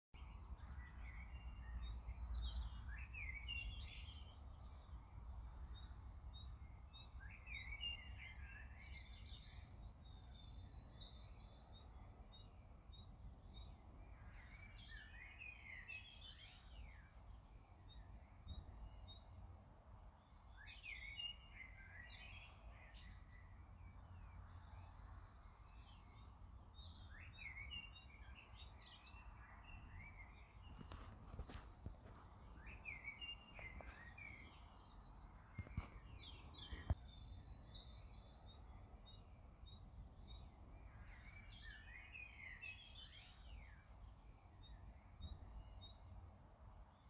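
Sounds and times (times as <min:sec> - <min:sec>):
faint birdsong: 0:00.1 - 0:47.0.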